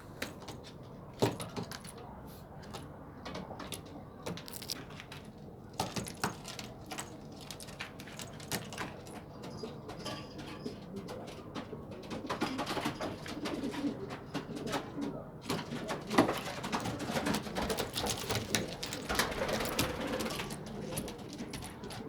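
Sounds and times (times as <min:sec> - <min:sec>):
pigeons cooing: 0:06.5 - 0:22.0.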